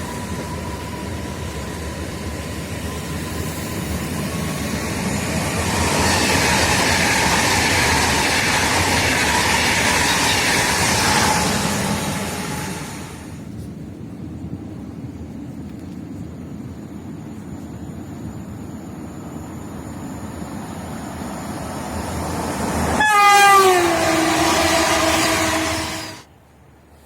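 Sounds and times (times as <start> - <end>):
train passing at speed: 0.0 - 26.4
thin steady whine: 16.1 - 26.3.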